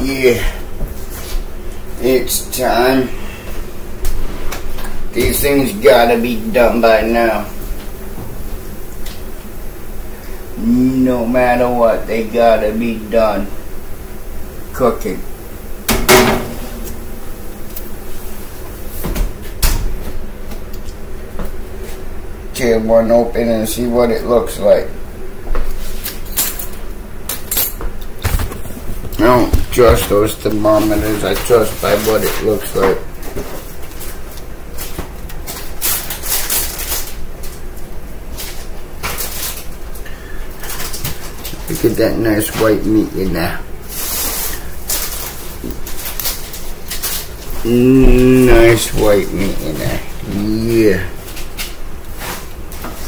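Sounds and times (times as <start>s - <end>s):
steady low hum: 0.0s - 53.0s
sharp knocks: 15.9s - 16.8s
kitchen clunks: 15.9s - 16.9s.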